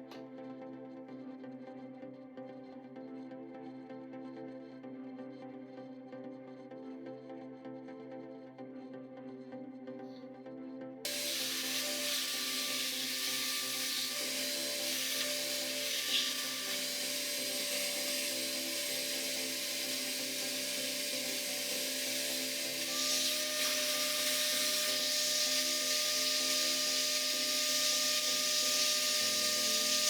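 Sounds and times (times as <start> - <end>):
power tool motor whining: 11.1 - 30.0
rushing hiss: 11.1 - 30.0.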